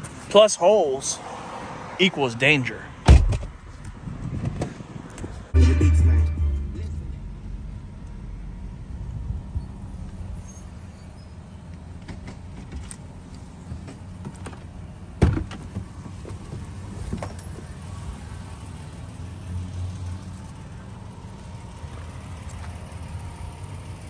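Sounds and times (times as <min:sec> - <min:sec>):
car engine low rumble: 0:05.1 - 0:24.0.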